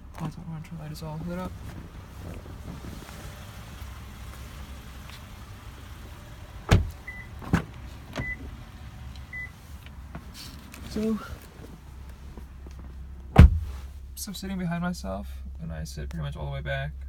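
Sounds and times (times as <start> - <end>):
steady low rumble: 0.0 - 17.0
car doors thumping: 6.6 - 8.5, 12.8 - 13.9.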